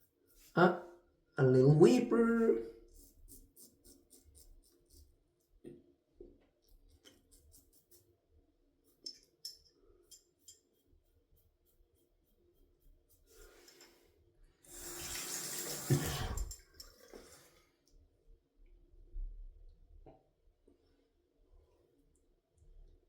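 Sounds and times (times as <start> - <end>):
tap running into sink: 14.8 - 16.6.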